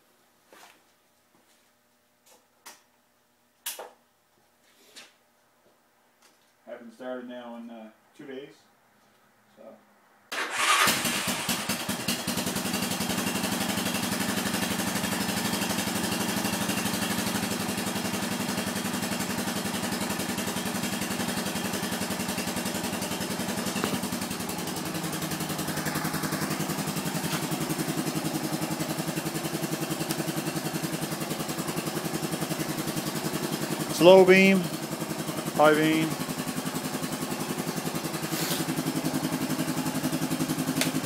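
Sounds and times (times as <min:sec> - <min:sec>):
atv engine starting and idling: 0:10.3 - 0:41.0.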